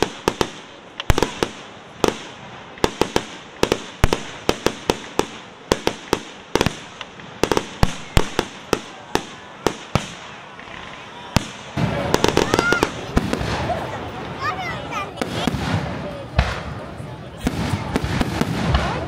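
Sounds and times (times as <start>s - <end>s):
underwater fireworks bangs: 0.0s - 14.0s, 17.4s - 19.0s
crackling hiss: 0.0s - 14.4s.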